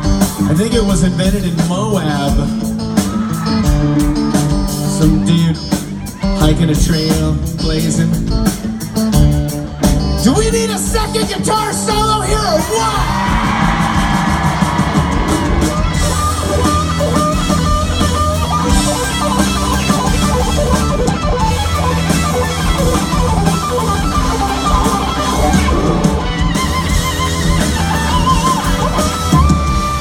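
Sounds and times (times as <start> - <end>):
live rock band playing: 0.0 - 30.0
electric guitar solo: 10.8 - 30.0.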